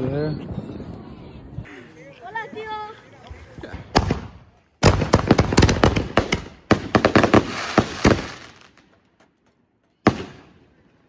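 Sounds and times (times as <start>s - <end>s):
fireworks crackling and popping: 3.2s - 9.0s.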